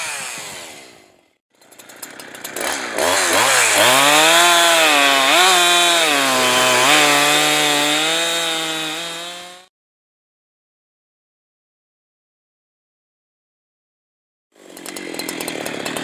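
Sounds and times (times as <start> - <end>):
chainsaw running: 0.0 - 9.7, 14.6 - 16.0.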